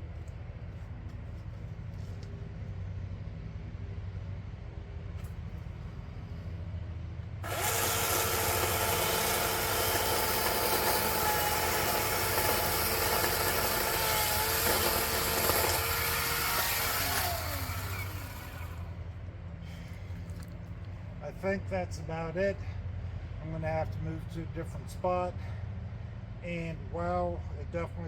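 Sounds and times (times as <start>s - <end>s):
chainsaw revving and cutting: 7.4s - 18.9s.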